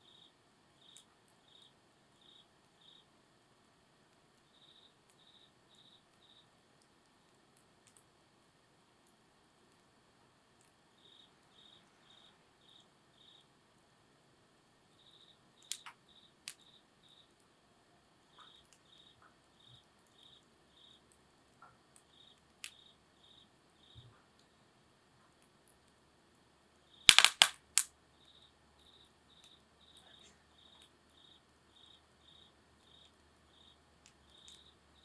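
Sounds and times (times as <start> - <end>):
insect chirping trills: 0.0 - 3.2, 4.4 - 6.6, 10.8 - 14.0, 14.8 - 17.4, 18.2 - 24.6, 26.8 - 35.0
campfire pops and crackles: 6.1 - 8.1, 15.6 - 17.5, 21.1 - 23.0, 27.1 - 27.9.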